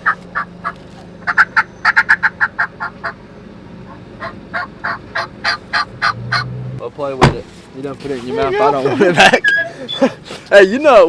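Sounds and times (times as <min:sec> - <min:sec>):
turkey yelping: 0:00.0 - 0:06.6.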